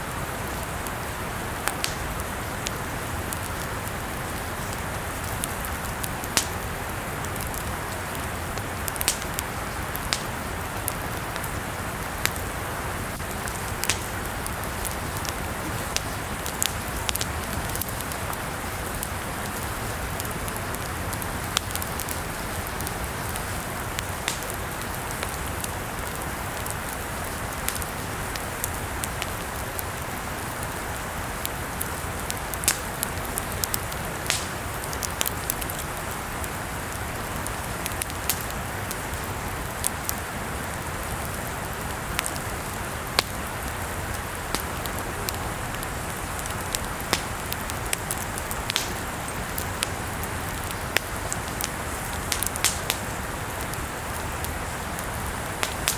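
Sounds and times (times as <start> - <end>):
campfire crackling and popping: 0.0 - 55.9.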